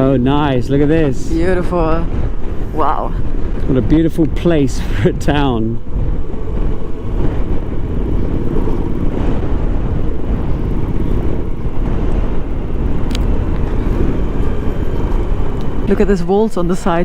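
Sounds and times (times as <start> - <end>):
motorcycle engine and wind rumble: 0.0 - 17.0.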